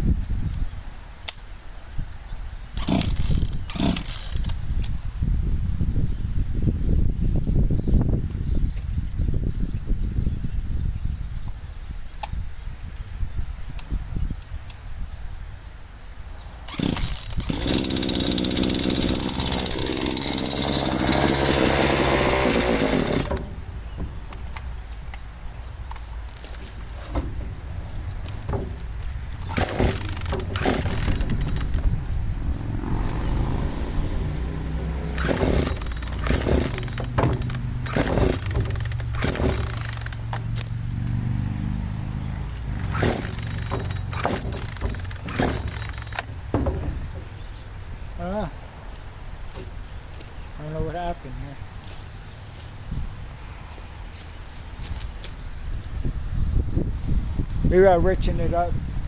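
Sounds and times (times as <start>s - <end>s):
chainsaw engine revving: 2.8s - 4.6s, 16.7s - 24.0s, 26.4s - 31.9s, 32.6s - 47.4s.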